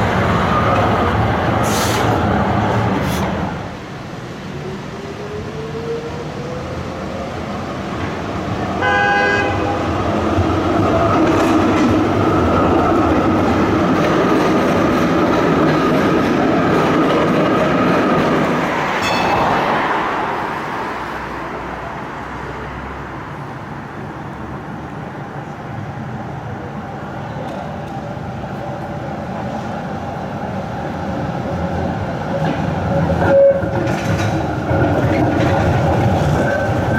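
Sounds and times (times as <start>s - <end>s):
tram passing: 0.0s - 36.9s
tram warning signal: 17.2s - 20.8s, 32.8s - 36.9s.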